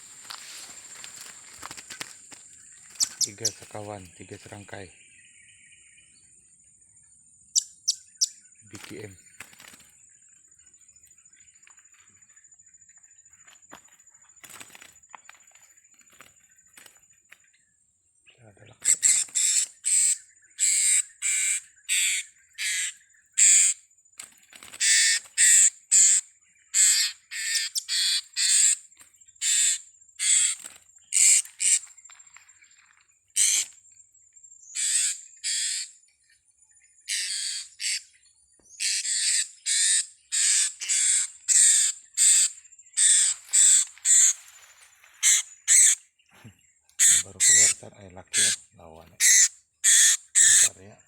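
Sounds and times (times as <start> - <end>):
parrots squawking: 18.8 - 23.7, 33.4 - 33.7, 34.8 - 35.8, 37.1 - 38.0, 38.8 - 44.4, 45.2 - 46.0, 47.0 - 50.8.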